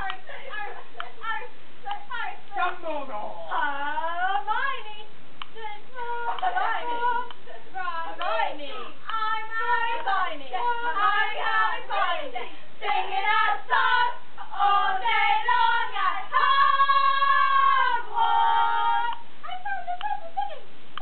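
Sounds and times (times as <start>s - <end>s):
high-pitched voices chanting: 8.1s - 20.5s.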